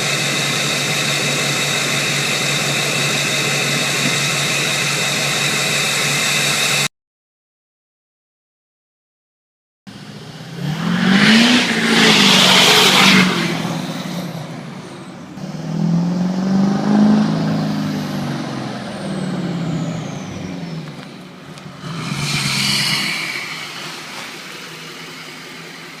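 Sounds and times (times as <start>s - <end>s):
diesel engine revving: 0.0s - 6.9s, 9.9s - 26.0s
loud hiss: 0.0s - 6.9s, 21.7s - 26.0s.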